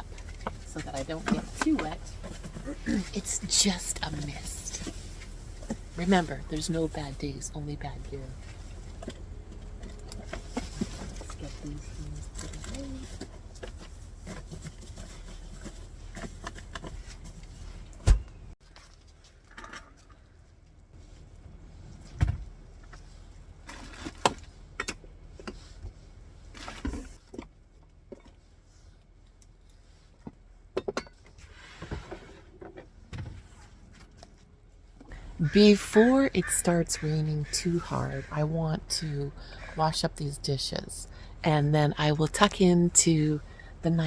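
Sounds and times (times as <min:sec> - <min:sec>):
camping gear knocking and clattering: 0:00.0 - 0:03.4.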